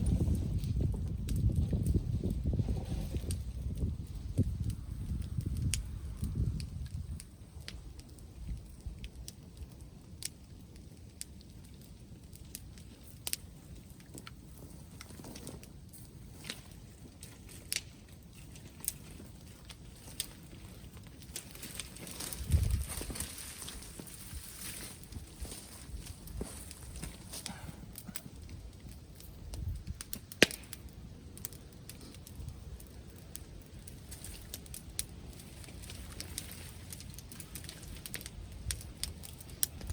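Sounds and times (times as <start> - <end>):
wind on microphone: 0.0 - 9.2, 22.0 - 30.1
fire popping: 0.0 - 39.9
wood bonfire crackling: 0.0 - 39.9
loud sharp crack: 30.4 - 30.8.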